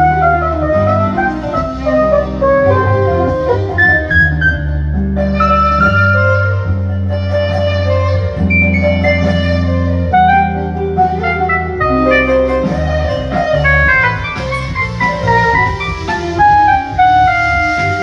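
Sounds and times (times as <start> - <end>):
bass guitar notes: 0.0 - 18.0
drum kit: 0.0 - 18.0
violin: 0.0 - 18.0.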